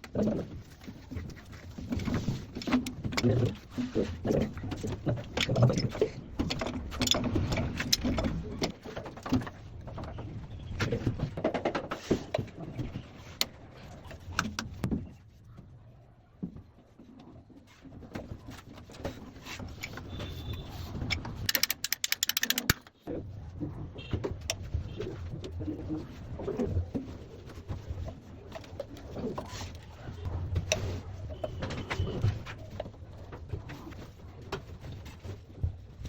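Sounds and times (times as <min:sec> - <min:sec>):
plastic pipe fittings clicking: 0:21.1 - 0:23.0.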